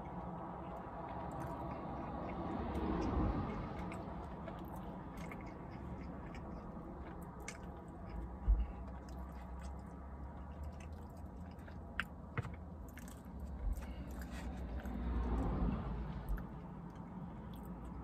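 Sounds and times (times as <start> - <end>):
person chewing: 0.0 - 18.0
dull low thump: 8.4 - 8.8.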